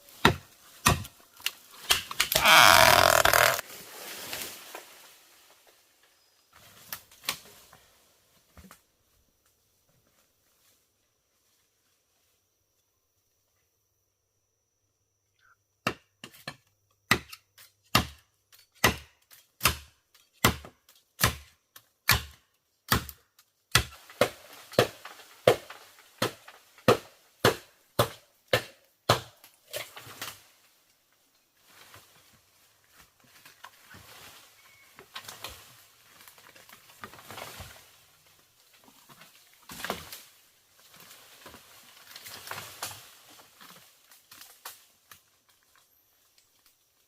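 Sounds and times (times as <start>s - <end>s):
bamboo rustling and scraping: 0.0s - 12.5s, 29.4s - 47.0s
blade chopping bamboo: 1.8s - 3.6s.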